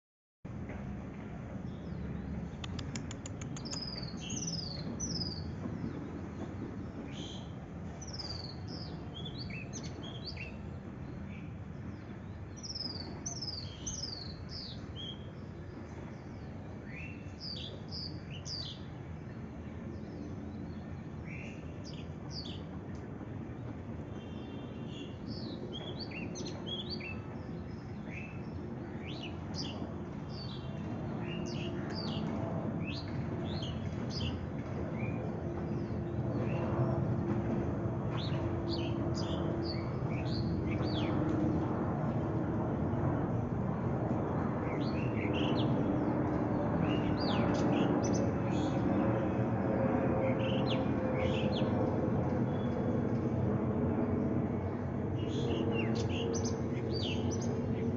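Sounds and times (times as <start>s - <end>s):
bird chirping: 1.8s - 5.5s.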